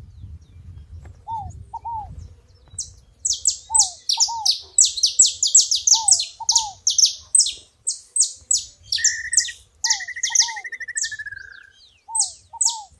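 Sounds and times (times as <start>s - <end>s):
finches singing: 0.0s - 12.9s
bird trill: 1.2s - 12.9s
lower falling bird notes: 8.2s - 12.9s.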